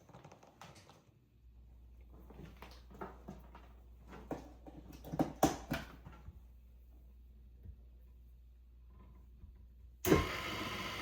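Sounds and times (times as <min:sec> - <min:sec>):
stand mixer humming: 0:10.1 - 0:11.0.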